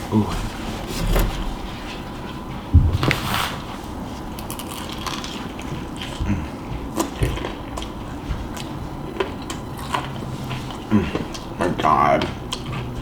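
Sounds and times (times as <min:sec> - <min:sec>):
biting and chewing crispy chicken: 0:04.4 - 0:13.0.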